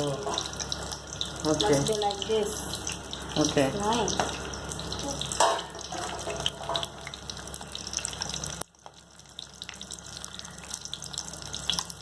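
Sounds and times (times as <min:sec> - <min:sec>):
spring rolls frying in hot oil: 0:00.0 - 0:12.0.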